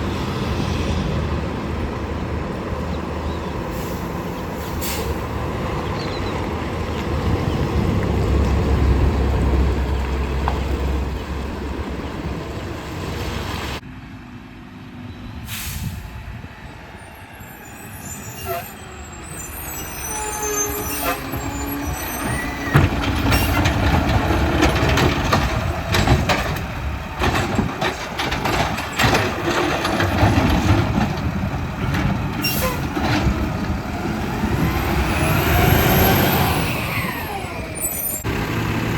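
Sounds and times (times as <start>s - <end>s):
diesel engine rumbling: 0.0s - 38.9s
air brake hisses: 3.7s - 5.2s, 15.4s - 16.2s
clanks and knocks of truck gear: 22.5s - 33.6s.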